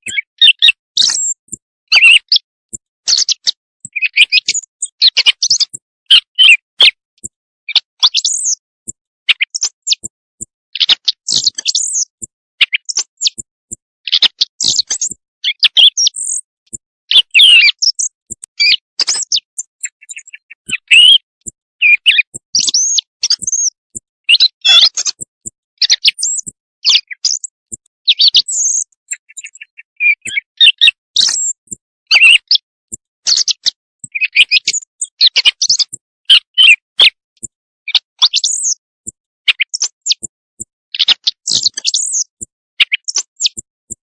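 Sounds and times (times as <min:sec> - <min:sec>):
quail chirping calls: 0:00.0 - 0:07.0, 0:09.3 - 0:10.1, 0:10.8 - 0:13.5, 0:14.1 - 0:16.5, 0:17.1 - 0:21.2, 0:21.8 - 0:37.1.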